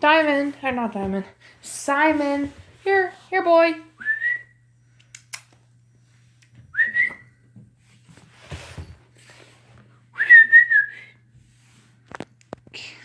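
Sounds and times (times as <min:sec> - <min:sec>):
person whistling: 0:04.0 - 0:04.6, 0:06.7 - 0:07.3, 0:10.2 - 0:11.1.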